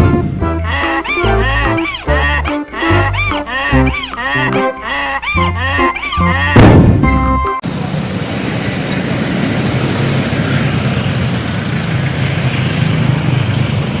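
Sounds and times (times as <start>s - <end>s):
road and tyre noise: 7.6s - 14.0s.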